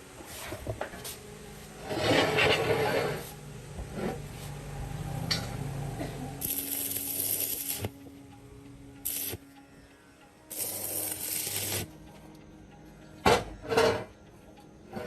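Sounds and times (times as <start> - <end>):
steady high hiss: 0.0 - 13.3
loud scraping rub: 1.8 - 4.8.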